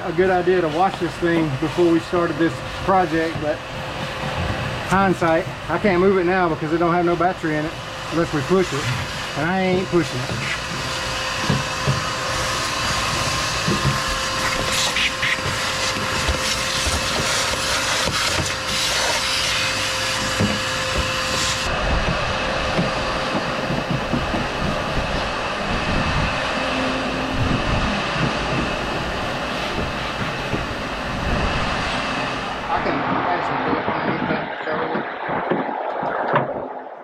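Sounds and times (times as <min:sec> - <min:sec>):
cleaning tool air whirring: 0:00.0 - 0:32.8
hiss: 0:08.0 - 0:21.7.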